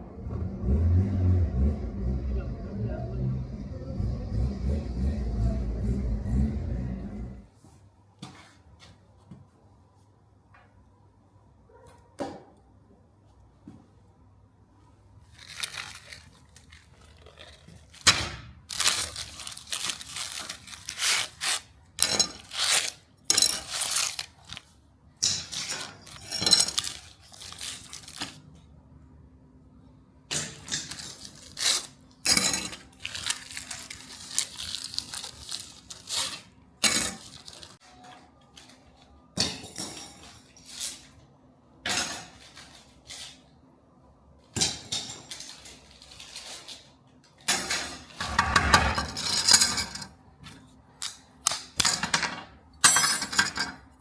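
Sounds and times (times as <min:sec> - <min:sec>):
metal clattering and scraping: 0:47.7 - 0:50.2.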